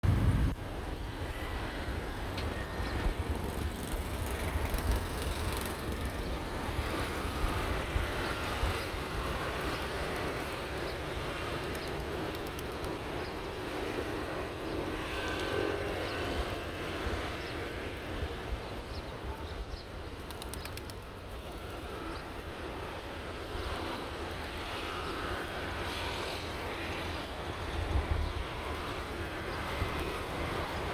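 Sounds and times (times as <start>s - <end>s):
steady low rumble: 0.0s - 1.1s.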